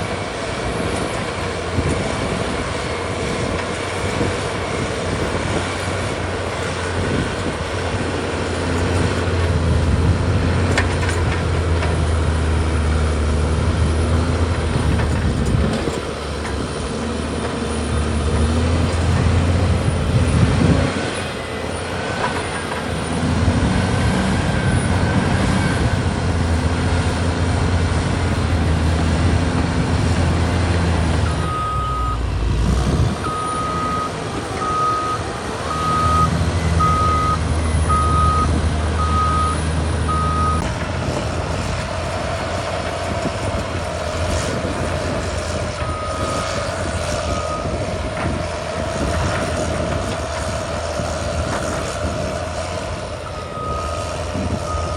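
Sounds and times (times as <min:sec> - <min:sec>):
bulldozer diesel engine running: 0:00.0 - 0:54.9
reverse alarm beeping: 0:31.4 - 0:32.2, 0:33.2 - 0:40.6.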